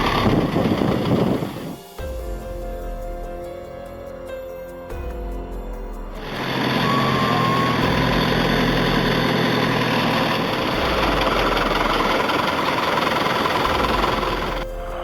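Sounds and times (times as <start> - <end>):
tractor engine hum: 6.2 - 14.6
rough rush of noise: 6.2 - 15.0.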